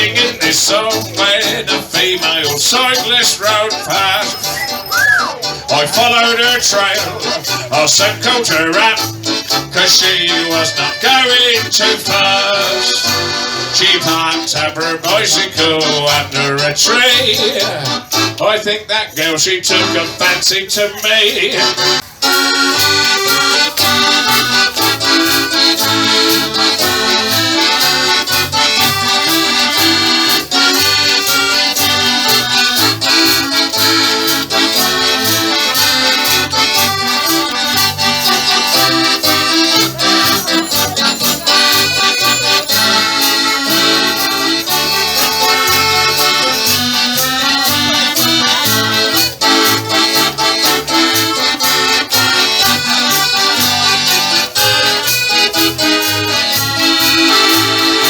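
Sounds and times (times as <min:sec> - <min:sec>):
accordion: 0:00.0 - 0:58.0
live folk band playing: 0:00.0 - 0:58.0
clicking beat: 0:21.3 - 0:58.0.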